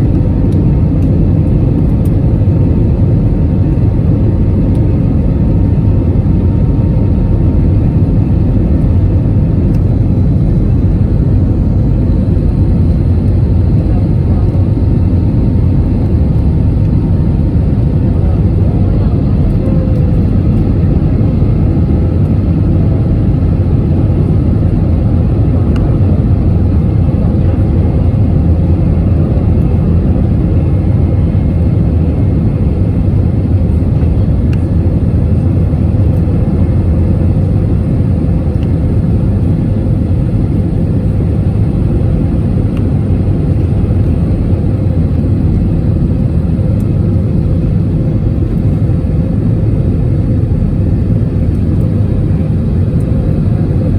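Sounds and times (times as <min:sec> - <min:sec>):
jet airliner cabin rumble: 0:00.0 - 0:53.9.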